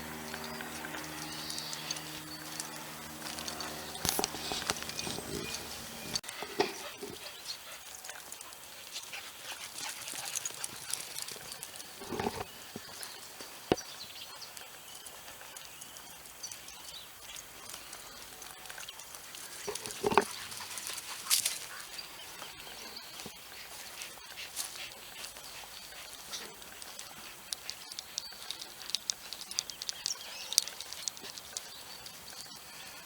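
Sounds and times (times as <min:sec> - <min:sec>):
dogs scuffling: 0:00.2 - 0:13.6.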